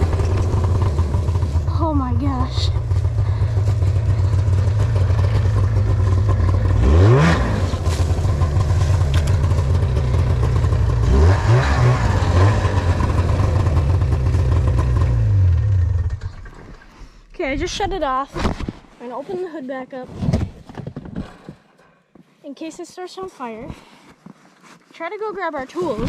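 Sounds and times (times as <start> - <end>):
snowmobile engine revving: 0.0 - 16.8.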